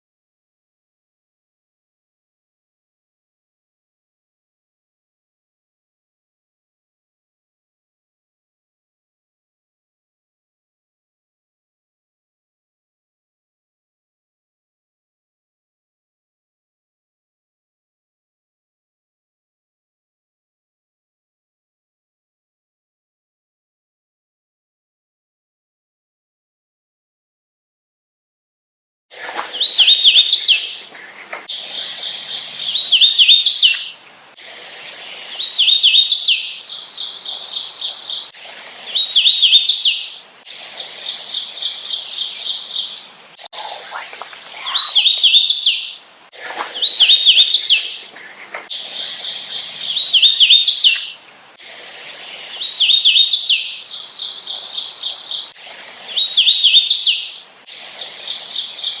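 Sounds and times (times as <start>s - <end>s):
rapid short bird notes: 29.2s - 34.0s, 43.6s - 51.2s
warbler singing: 29.4s - 34.1s, 34.9s - 51.3s, 52.0s - 59.0s.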